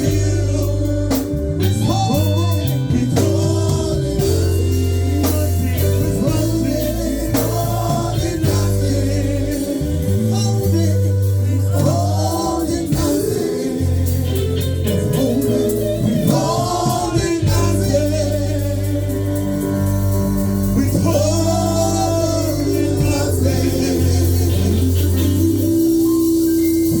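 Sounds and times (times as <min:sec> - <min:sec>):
band playing sustained chords: 0:00.0 - 0:27.0
voices singing held phrases: 0:15.2 - 0:19.6, 0:20.6 - 0:25.6.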